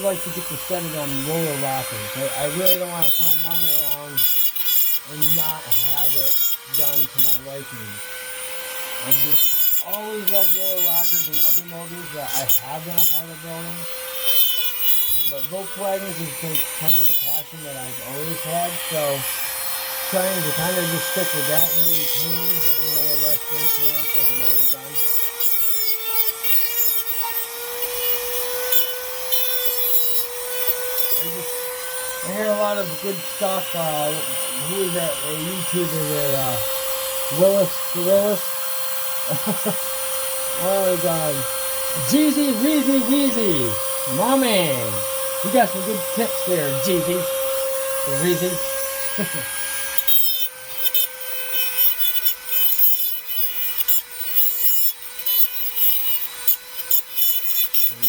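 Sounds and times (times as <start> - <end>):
power grinder whining and rasping: 0.0 - 58.0.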